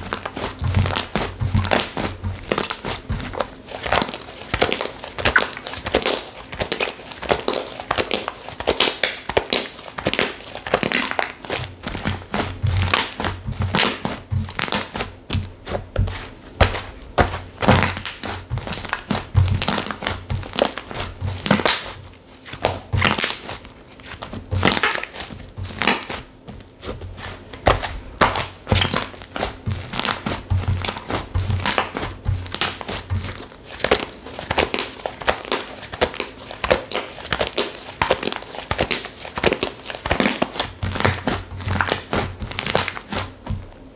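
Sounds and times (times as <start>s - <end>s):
slime crackling and popping: 0.0s - 15.5s, 16.6s - 22.0s, 22.6s - 23.6s, 24.5s - 26.2s, 27.7s - 43.4s
soft low thuds: 26.4s - 33.4s.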